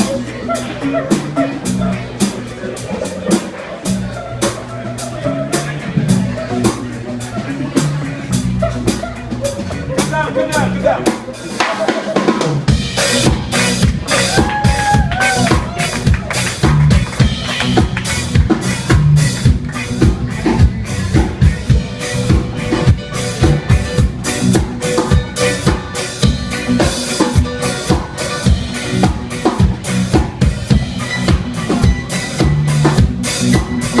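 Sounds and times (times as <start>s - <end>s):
reggae band playing: 0.0s - 34.0s
drum kit hits: 11.1s - 34.0s.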